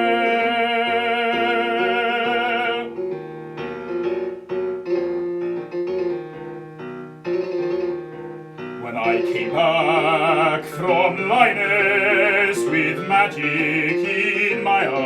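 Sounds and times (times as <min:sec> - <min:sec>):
baritone singing with vibrato: 0:00.0 - 0:03.1, 0:08.8 - 0:15.0
piano chords: 0:00.0 - 0:15.0.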